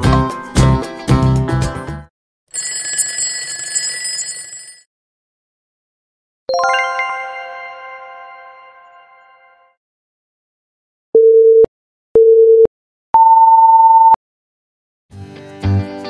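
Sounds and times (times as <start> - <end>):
background music: 0.0 - 2.1, 6.5 - 9.6, 15.2 - 16.0
bright chime ringing: 6.5 - 9.7
ringing bell sound effect: 6.5 - 9.8.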